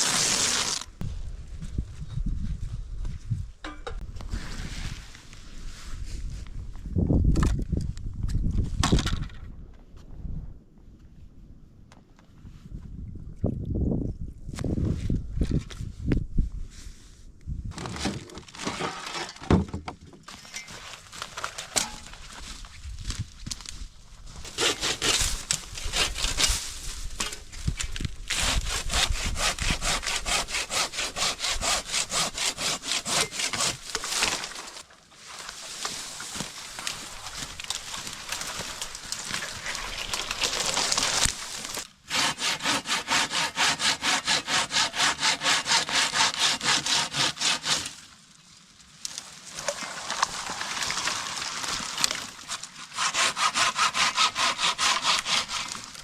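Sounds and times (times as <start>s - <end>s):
hand saw cutting wood: 0.0s - 0.9s, 24.5s - 26.6s, 28.3s - 34.7s, 39.3s - 48.0s, 52.4s - 56.0s.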